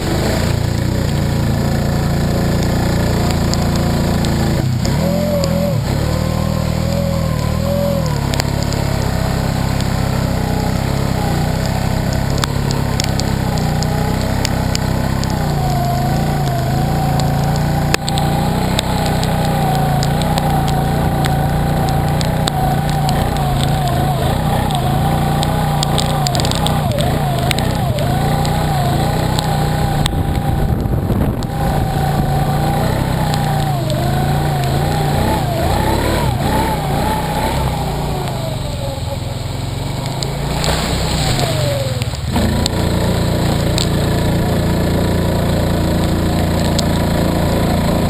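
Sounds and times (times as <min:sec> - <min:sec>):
vehicle engine revving: 0:00.0 - 0:48.0.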